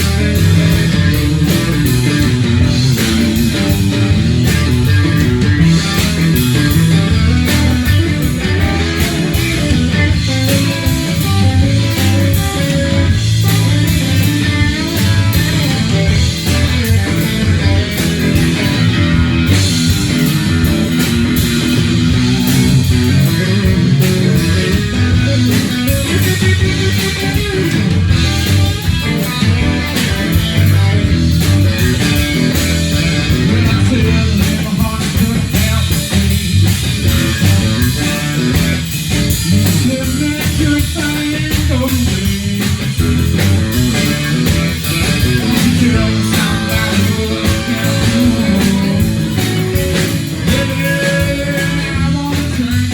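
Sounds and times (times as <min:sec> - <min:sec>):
blues-rock band playing: 0:00.0 - 0:52.9
electric guitar: 0:00.0 - 0:52.9.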